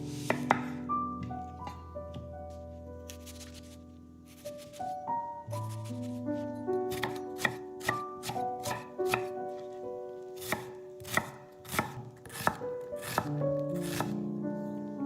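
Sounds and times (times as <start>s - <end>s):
soft background music: 0.0s - 15.0s
knife chopping on cutting board: 6.9s - 9.3s, 10.4s - 14.1s.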